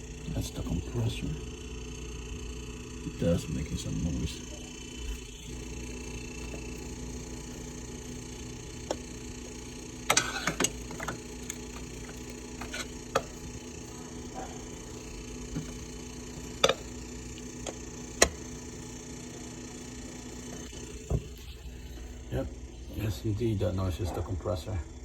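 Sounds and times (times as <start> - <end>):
refrigerator compressor humming: 0.0 - 25.0.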